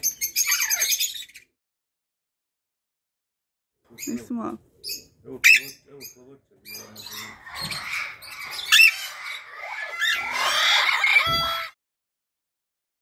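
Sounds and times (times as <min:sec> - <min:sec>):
parrots squawking: 0:00.0 - 0:01.5, 0:04.0 - 0:11.8.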